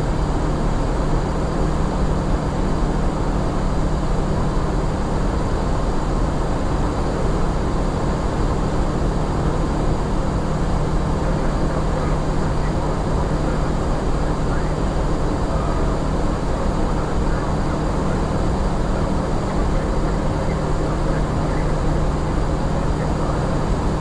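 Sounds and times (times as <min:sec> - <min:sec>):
constant low hum: 0:00.0 - 0:24.0
aircraft cockpit rush: 0:01.8 - 0:24.0.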